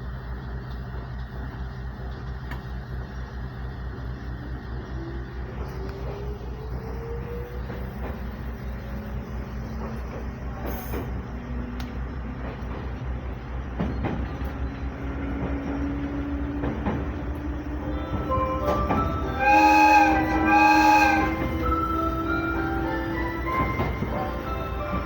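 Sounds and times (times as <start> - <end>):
rail-joint clicks: 0.4 - 25.0
electric train motor hum: 11.2 - 25.0
train horn blasts: 17.8 - 24.2.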